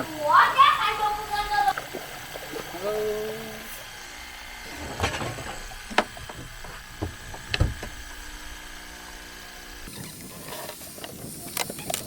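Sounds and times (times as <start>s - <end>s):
faint steady hum: 0.0s - 11.6s
clicks and knocks: 4.7s - 8.3s.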